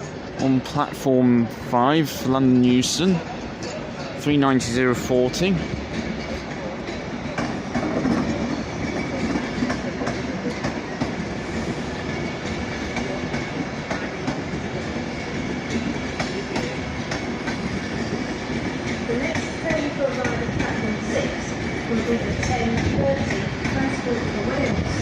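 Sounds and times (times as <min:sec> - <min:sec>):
electric train rumbling: 0:00.0 - 0:25.0
faint train whine: 0:00.0 - 0:25.0
wheels clicking over rail joints: 0:15.6 - 0:25.0.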